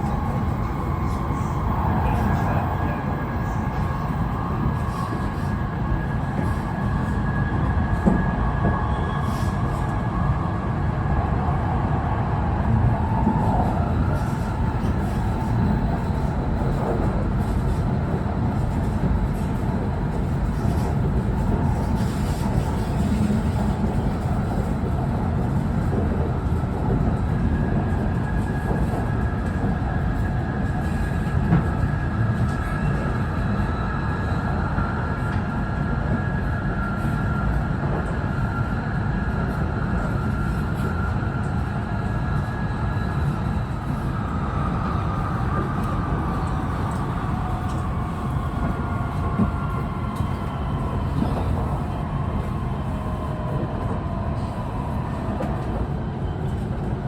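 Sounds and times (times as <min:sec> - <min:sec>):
train wheels rumbling on track: 0:00.0 - 0:57.0.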